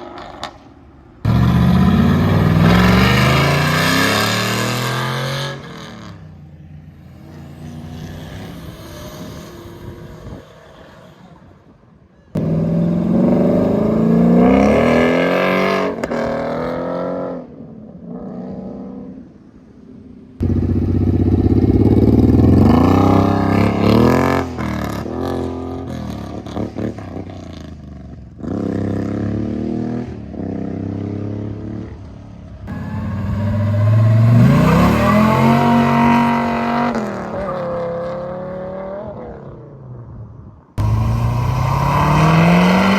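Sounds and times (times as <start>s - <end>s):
car engines revving hard: 1.2s - 6.2s, 12.4s - 17.4s, 32.6s - 39.3s, 40.8s - 42.9s.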